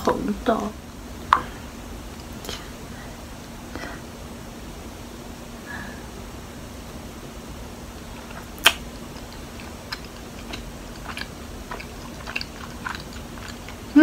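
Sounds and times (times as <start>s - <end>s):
chewing sticky food: 7.9s - 14.0s
wet mouth clicks: 8.2s - 14.0s.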